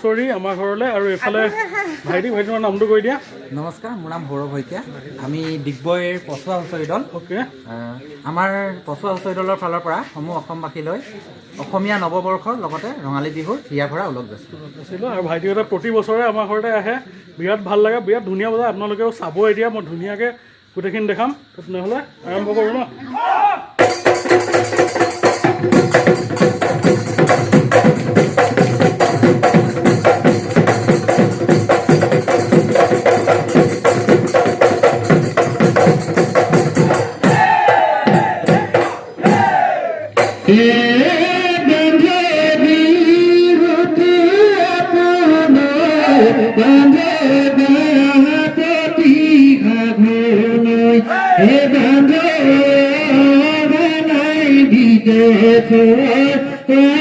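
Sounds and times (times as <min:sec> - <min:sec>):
fast drumming: 0:23.8 - 0:40.7
group singing: 0:36.8 - 0:57.0.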